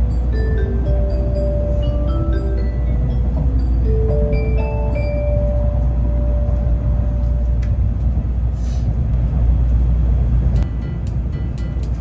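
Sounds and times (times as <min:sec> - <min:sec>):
onboard chime melody: 0:00.0 - 0:07.2
train rumble inside car: 0:00.0 - 0:12.0.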